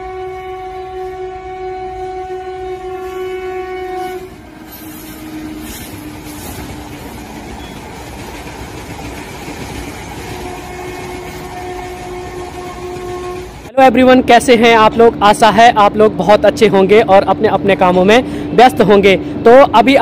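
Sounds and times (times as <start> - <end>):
train horn: 0.0 - 6.9, 10.3 - 13.7
passing train rumble: 0.0 - 20.0.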